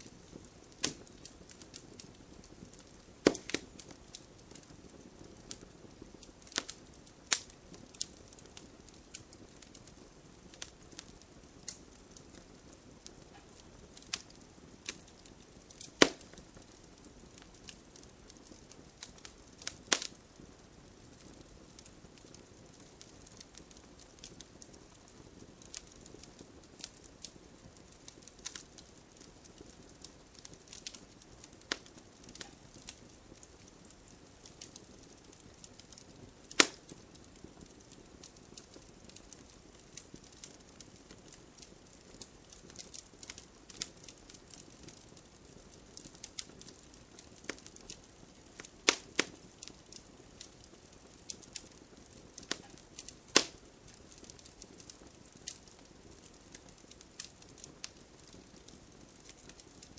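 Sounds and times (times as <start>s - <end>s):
bonfire crackling and popping: 0.0s - 59.9s.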